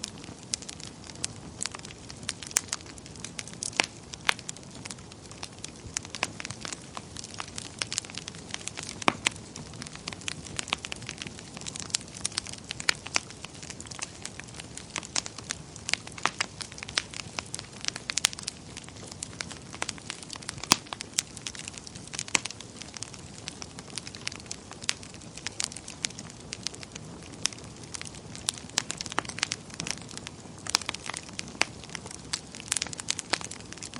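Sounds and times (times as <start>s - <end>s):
wood fire crackling and popping: 0.0s - 33.9s.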